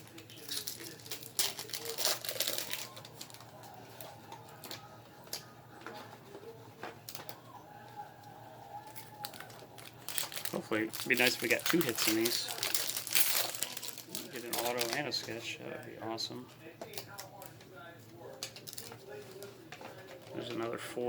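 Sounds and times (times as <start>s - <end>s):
wrappers crinkling: 0.0s - 6.2s, 6.9s - 7.5s, 8.7s - 15.9s, 18.4s - 20.6s
cards being handled: 8.8s - 15.4s.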